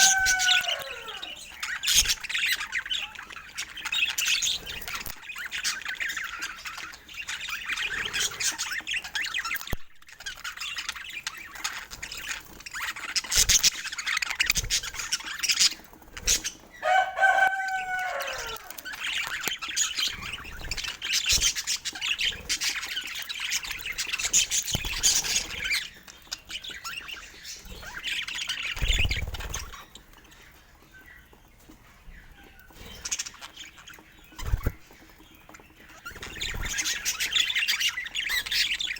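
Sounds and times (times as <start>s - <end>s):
bird falling call: 0.0s - 1.4s, 16.8s - 18.8s
budgerigars chirping and chattering: 0.0s - 38.9s.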